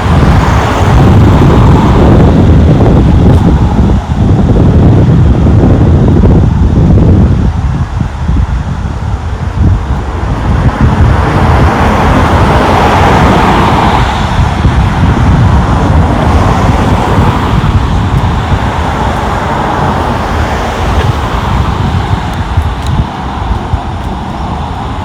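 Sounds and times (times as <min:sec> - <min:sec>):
low traffic rumble: 0:00.0 - 0:25.0
vehicle passing close by: 0:00.0 - 0:25.0.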